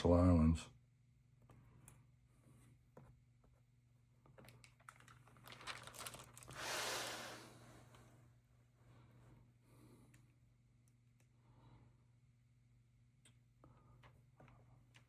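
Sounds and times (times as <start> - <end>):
paper and plastic clicks and crinkles: 4.2 - 6.6
page turning rustle: 4.3 - 7.2.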